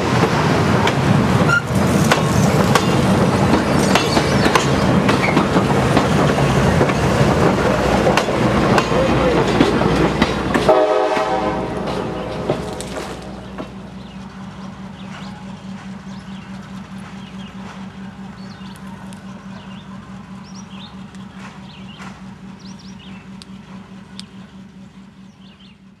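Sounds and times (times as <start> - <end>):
wheels clattering over rail joints: 0.0 - 10.7
train hum: 0.0 - 26.0
songbirds chirping: 13.2 - 26.0.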